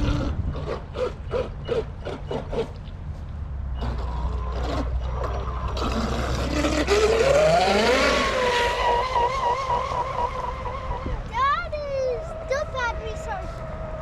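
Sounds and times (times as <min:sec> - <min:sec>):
electric motor whine: 0:03.8 - 0:11.3.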